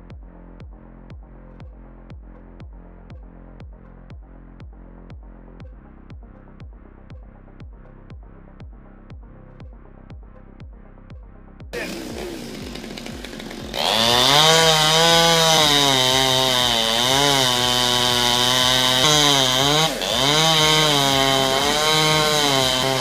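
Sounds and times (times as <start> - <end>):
electronic music with steady beat: 0.0 - 14.4
chainsaw running: 11.8 - 23.0.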